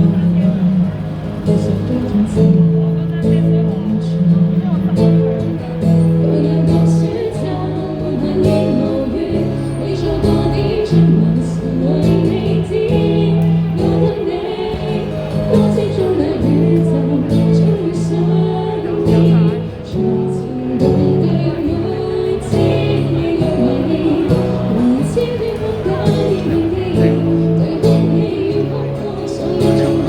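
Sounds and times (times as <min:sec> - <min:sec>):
held bass notes: 0:00.0 - 0:30.0
person singing: 0:06.2 - 0:30.0.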